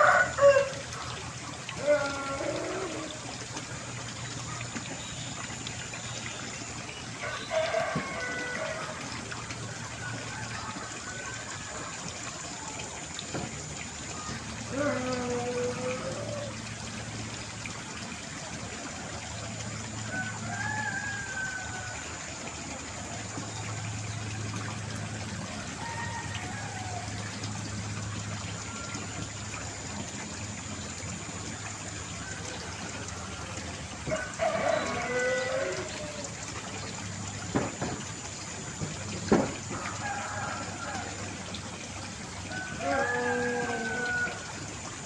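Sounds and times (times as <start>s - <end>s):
rooster crowing: 0.0s - 0.8s, 7.2s - 9.0s, 20.1s - 22.0s, 34.1s - 36.3s, 39.8s - 41.3s, 42.5s - 44.6s.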